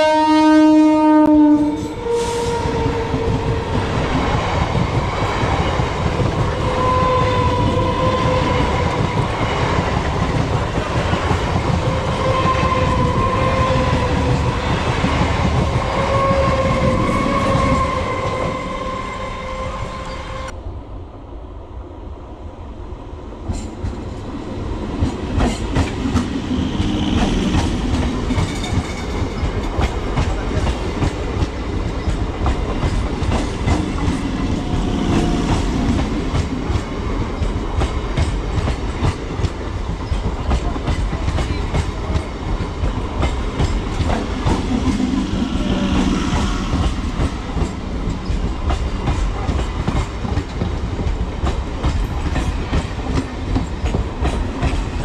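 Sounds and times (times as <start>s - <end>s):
train horn blast: 0.0s - 3.7s, 6.6s - 8.8s, 16.0s - 20.5s
train wheels rumbling: 1.2s - 20.6s, 23.1s - 55.0s.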